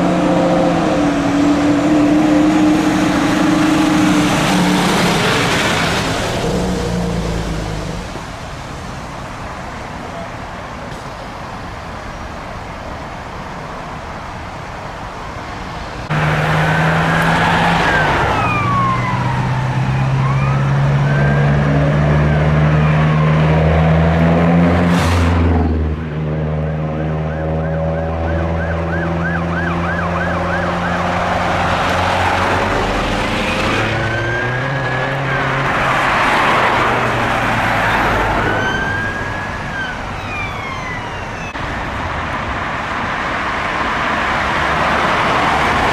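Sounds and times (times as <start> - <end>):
emergency vehicle siren: 16.1 - 24.3, 26.5 - 41.7.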